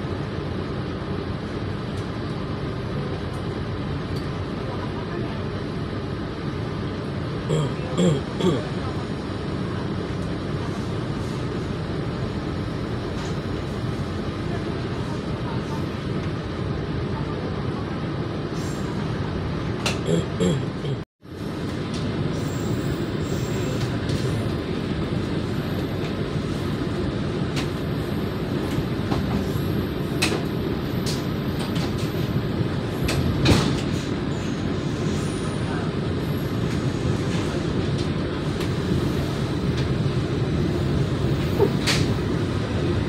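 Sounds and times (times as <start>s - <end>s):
train wheels rumbling on rails: 21.3s - 43.0s.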